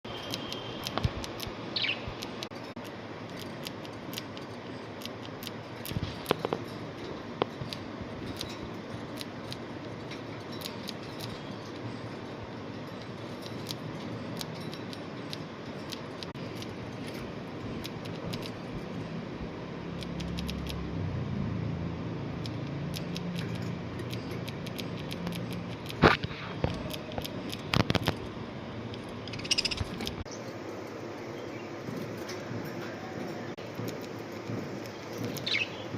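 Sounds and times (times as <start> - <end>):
budgerigars clicking and tapping: 0.1 - 6.8, 29.3 - 30.2, 33.7 - 35.9.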